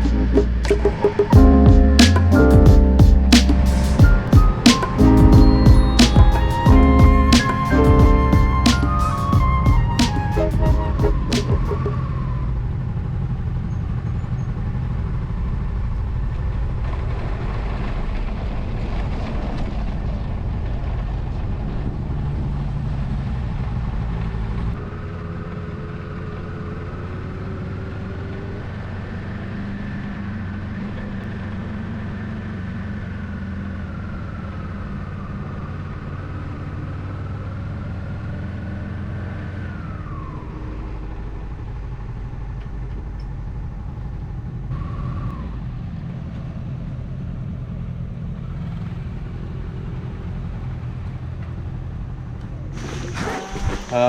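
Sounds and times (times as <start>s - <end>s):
road noise: 0.0s - 54.0s
motorcycle engine running: 1.2s - 7.3s.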